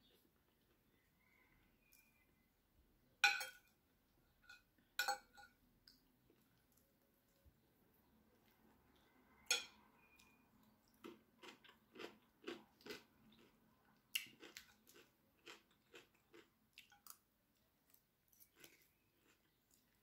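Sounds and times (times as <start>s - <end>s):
fork clinking on plate: 3.2s - 3.7s, 4.4s - 5.6s, 9.5s - 10.1s
person chewing salad: 10.0s - 20.0s.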